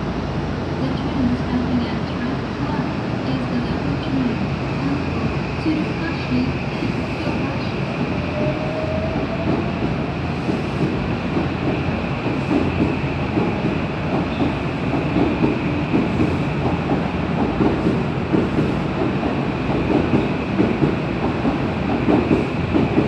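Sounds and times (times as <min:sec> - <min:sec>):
train wheels clacking over rail joints: 0:09.4 - 0:23.0.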